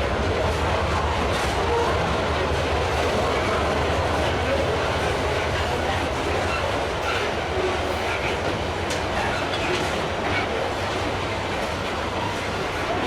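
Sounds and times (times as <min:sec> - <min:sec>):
freight train wagons rumbling: 0:00.0 - 0:13.0.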